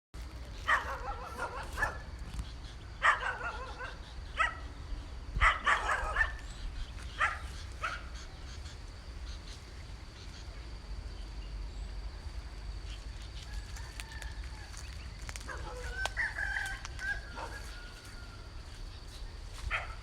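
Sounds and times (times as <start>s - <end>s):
wind rumble on microphone: 0.2s - 10.1s
dog barking and yipping: 0.6s - 2.1s, 3.0s - 4.7s, 5.4s - 6.5s, 7.1s - 8.2s, 15.4s - 17.8s, 19.7s - 20.0s.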